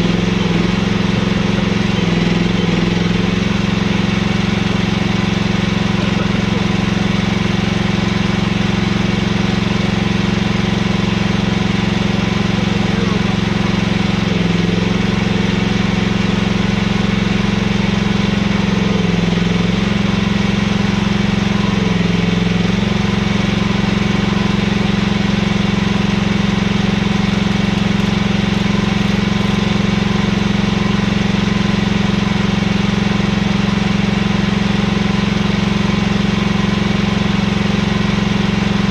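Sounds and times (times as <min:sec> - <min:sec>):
excavator engine running: 0:00.0 - 0:38.9.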